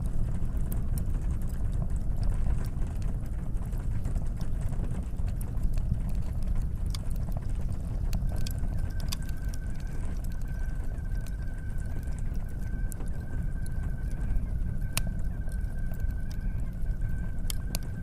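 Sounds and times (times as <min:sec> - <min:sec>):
low fire rumble: 0:00.0 - 0:18.0
wood fire crackling: 0:00.0 - 0:18.0
kettle whistling: 0:08.3 - 0:18.0.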